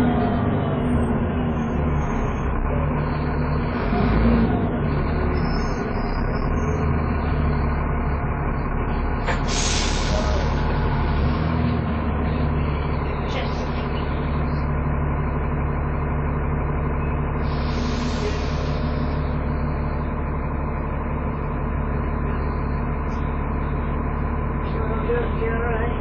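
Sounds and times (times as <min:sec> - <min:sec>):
bus engine whining: 0:00.0 - 0:26.0
compressed air hiss: 0:09.4 - 0:10.3.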